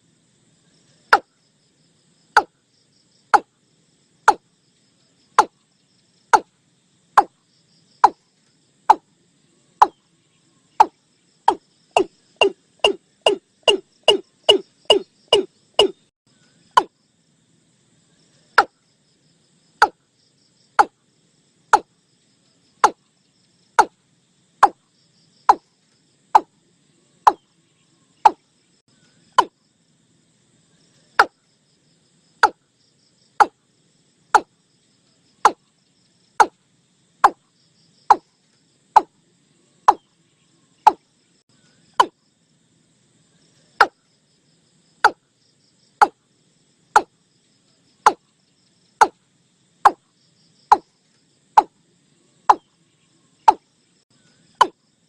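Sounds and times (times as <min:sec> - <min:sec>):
bird decoy call: 0:11.5 - 0:16.0.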